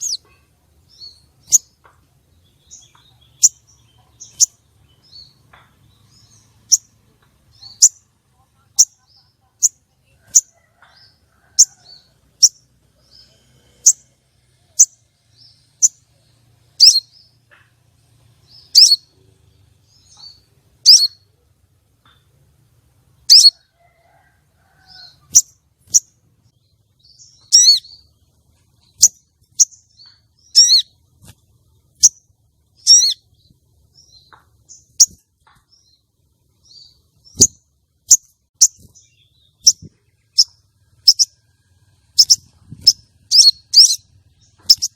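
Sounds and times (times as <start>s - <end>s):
bird trilled calls: 0.0s - 1.8s, 7.5s - 8.1s, 16.8s - 17.8s, 18.5s - 19.2s, 19.9s - 21.3s, 23.2s - 23.6s, 27.0s - 28.1s, 28.8s - 31.0s, 31.9s - 33.4s, 36.6s - 41.4s, 42.1s - 44.9s
sunbird chirping: 0.0s - 22.4s, 23.1s - 44.9s.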